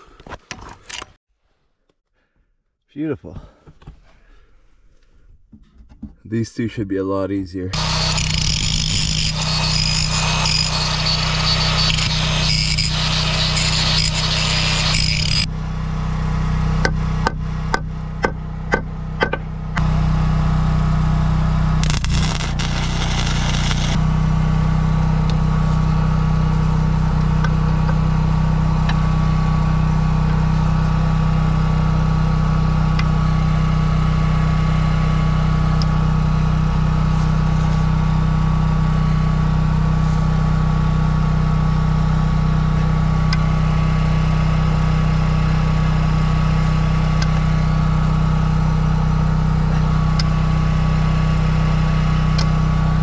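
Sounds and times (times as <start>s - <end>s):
small engine running: 7.8s - 17.2s, 19.7s - 24.6s
crackling hiss: 21.8s - 24.0s.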